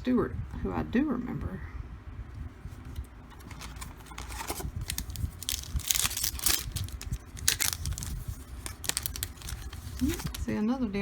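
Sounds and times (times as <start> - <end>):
wrapper tearing and crinkling: 3.3 - 10.5.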